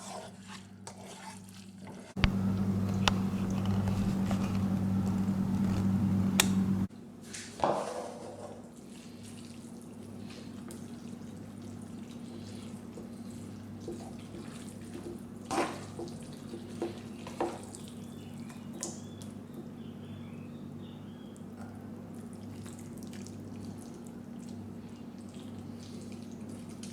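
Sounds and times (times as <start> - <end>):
low electrical hum: 2.2 - 7.2.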